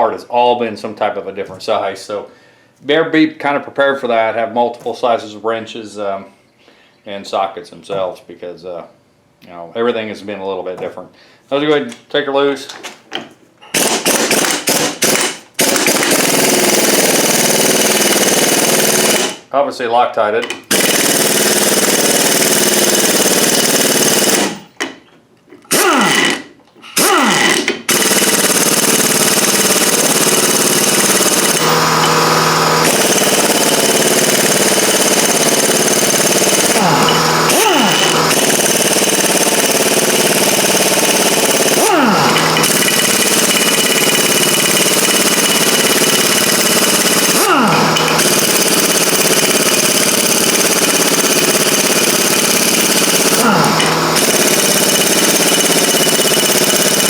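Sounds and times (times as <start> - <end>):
impact wrench hammering: 13.7 - 19.5, 20.4 - 25.0, 25.7 - 57.0.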